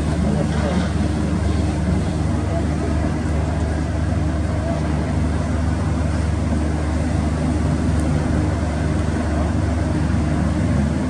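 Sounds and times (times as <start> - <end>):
ship engines droning: 0.0 - 11.0.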